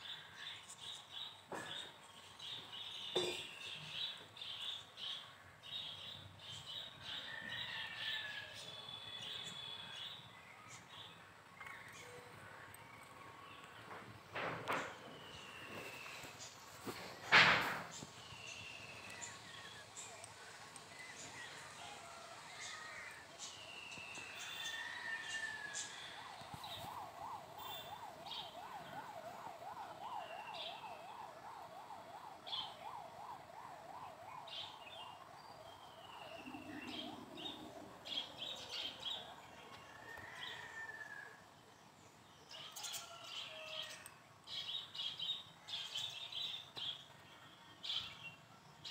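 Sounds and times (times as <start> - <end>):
small birds chirping: 0.0 - 14.0, 14.8 - 17.3, 17.9 - 29.4, 31.8 - 48.9
warbling siren-like tone: 17.8 - 39.3.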